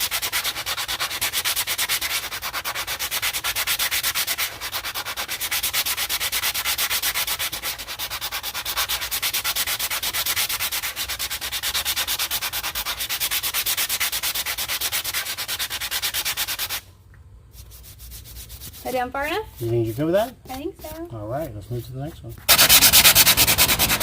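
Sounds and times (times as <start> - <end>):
power sander rasping: 22.5 - 24.0.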